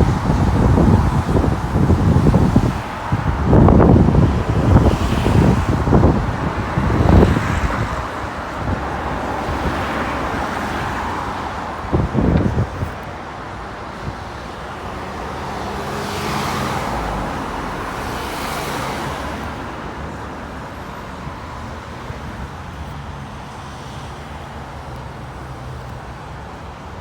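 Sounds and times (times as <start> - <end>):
vehicle passing close by: 0.0 - 13.0, 14.9 - 19.6
background traffic: 0.0 - 27.0.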